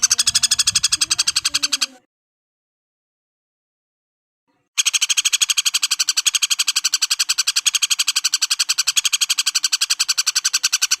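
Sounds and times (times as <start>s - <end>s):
woodpecker rattling call: 0.0s - 2.0s, 4.8s - 11.0s.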